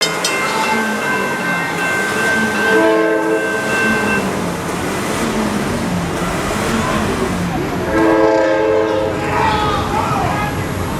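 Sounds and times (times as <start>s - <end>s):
train horn: 1.9s - 4.3s, 7.9s - 9.6s.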